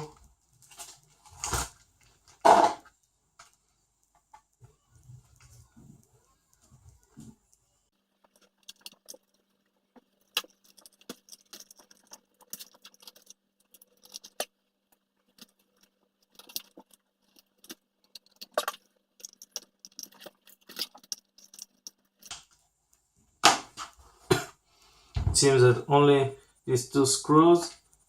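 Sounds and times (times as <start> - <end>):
plastic and metal parts clicking: 8.3 - 22.4.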